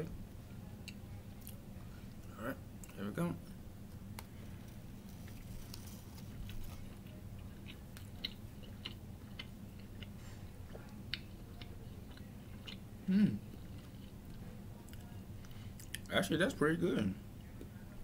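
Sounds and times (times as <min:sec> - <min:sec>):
person chewing with mouth clicks: 0:06.4 - 0:15.1.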